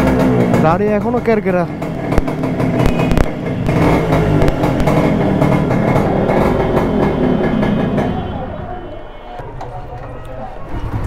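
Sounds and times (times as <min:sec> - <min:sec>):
two-stroke motorcycle engine running: 0:00.0 - 0:08.6.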